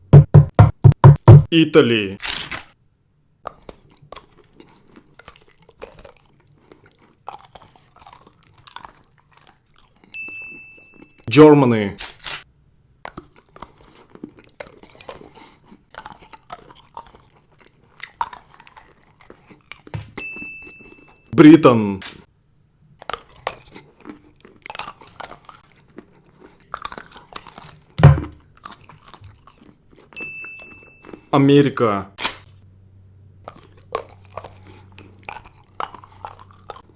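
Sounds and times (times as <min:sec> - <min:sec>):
chewing chocolate crunches: 0:03.4 - 0:11.3, 0:13.0 - 0:21.3, 0:22.9 - 0:31.5, 0:33.4 - 0:36.9.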